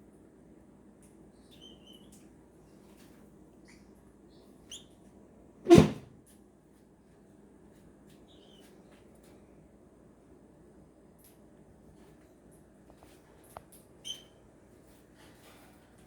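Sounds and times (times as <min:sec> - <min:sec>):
loud sharp thump: 0:05.7 - 0:06.1.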